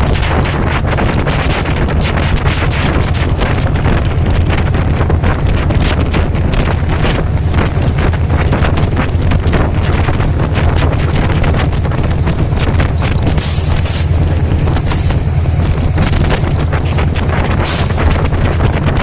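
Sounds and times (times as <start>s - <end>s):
train rumble: 0.0s - 19.0s
wheels clattering on rails: 0.0s - 19.0s
wind buffeting microphone: 0.0s - 19.0s.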